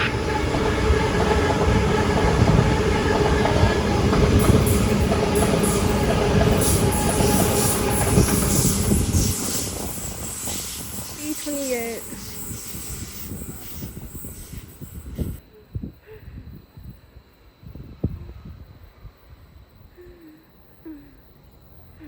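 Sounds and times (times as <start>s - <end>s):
wheels clickety-clack on rails: 0.0s - 15.4s
train rumbling: 0.0s - 15.6s
train whine: 0.0s - 15.6s.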